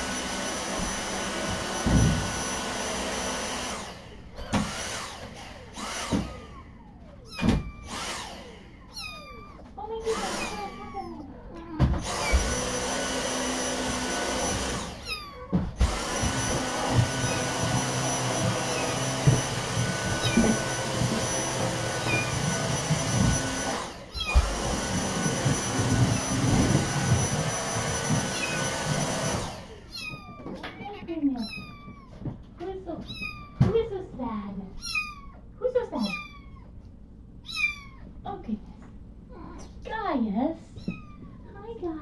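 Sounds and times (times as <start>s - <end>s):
vacuum cleaner whining: 0.0s - 32.3s
kittens meowing: 6.3s - 12.5s, 14.8s - 15.8s, 16.4s - 23.4s, 24.1s - 24.6s, 29.8s - 32.4s, 33.0s - 33.7s, 34.7s - 38.2s, 40.7s - 41.7s.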